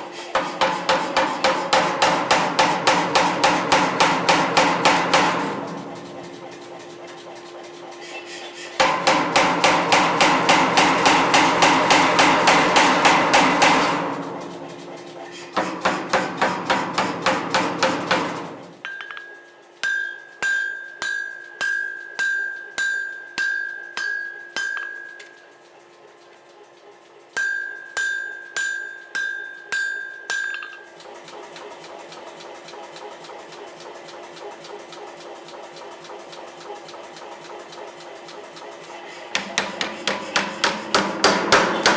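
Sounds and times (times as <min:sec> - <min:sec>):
hammer blows on steel: 0:08.8 - 0:18.8, 0:39.4 - 0:41.9.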